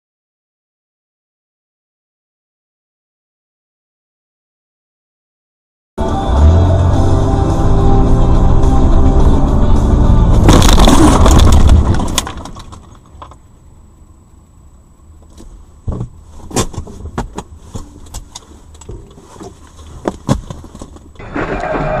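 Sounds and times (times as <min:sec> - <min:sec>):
loud steady sound: 0:06.0 - 0:12.4
car road rumble: 0:06.0 - 0:22.0.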